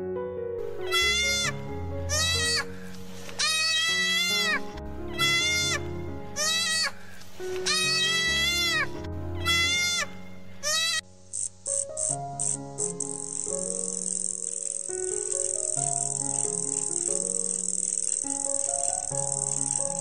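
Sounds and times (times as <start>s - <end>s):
background music: 0.0s - 20.0s
sheep bleating: 0.8s - 2.7s, 3.4s - 11.0s.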